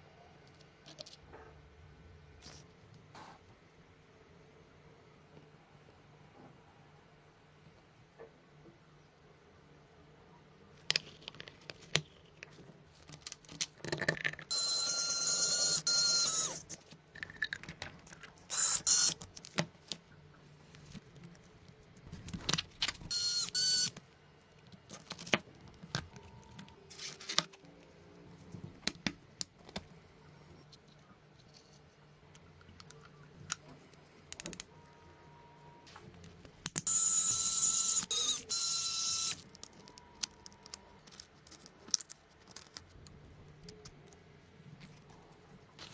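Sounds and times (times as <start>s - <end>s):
small high-pitched motor whirring: 14.5s - 16.8s, 18.5s - 19.2s, 23.1s - 23.9s, 36.8s - 40.8s.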